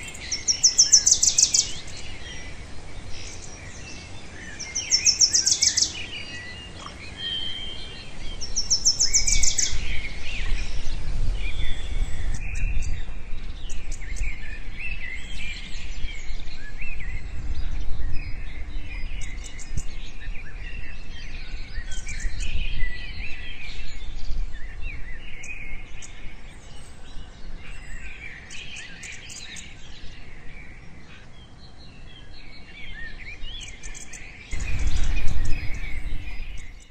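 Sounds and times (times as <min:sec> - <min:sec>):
birds chirping in chorus: 0:00.0 - 0:36.9
low rumble: 0:34.5 - 0:36.9.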